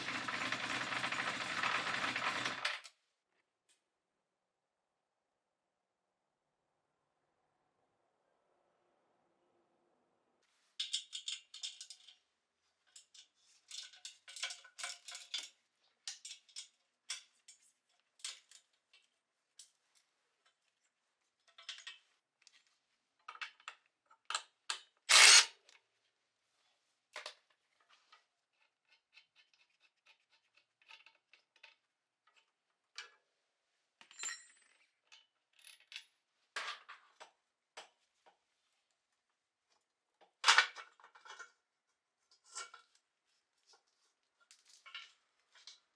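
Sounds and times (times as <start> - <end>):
metal scrape: 25.1 - 25.5
metallic clicks of tools: 25.1 - 25.5.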